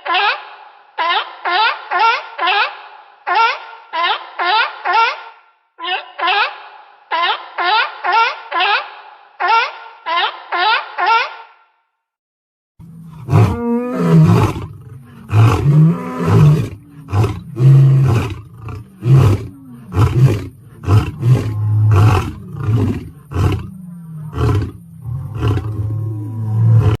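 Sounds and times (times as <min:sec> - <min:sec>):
large animal roaring: 0:12.9 - 0:27.0.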